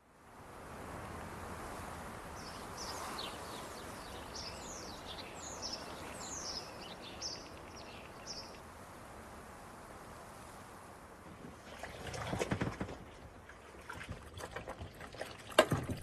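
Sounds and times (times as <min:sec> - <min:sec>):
outdoor background hiss: 0:00.0 - 0:16.0
small bird singing: 0:02.4 - 0:08.6.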